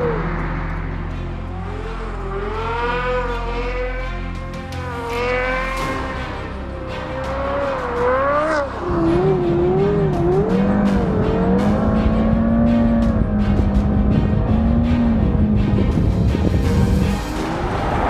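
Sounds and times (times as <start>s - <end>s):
music: 0.0s - 18.0s.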